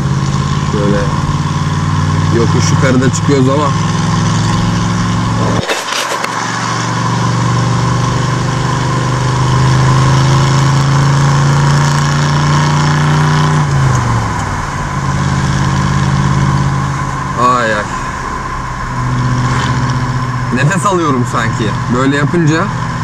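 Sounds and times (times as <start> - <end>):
car engine under load: 0.0 - 23.0.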